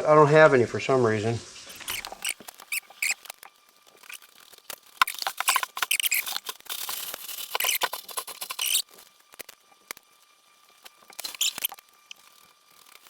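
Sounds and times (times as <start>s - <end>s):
plastic bags crinkling: 1.8s - 9.6s.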